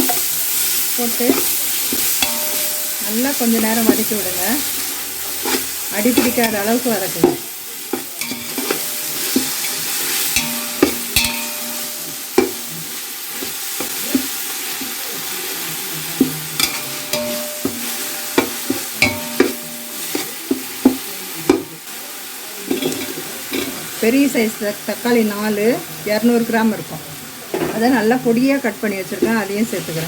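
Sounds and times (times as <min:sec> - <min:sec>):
spoon scraping a pan: 0:00.0 - 0:15.0, 0:16.2 - 0:21.0, 0:22.7 - 0:23.9
onions sizzling in oil: 0:00.0 - 0:30.0.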